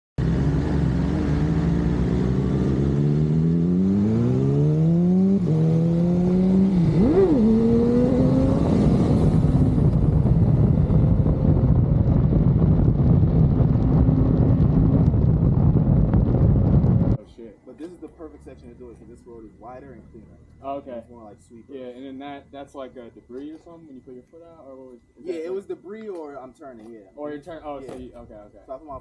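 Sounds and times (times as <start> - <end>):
motorcycle engine accelerating: 0.2 - 17.2.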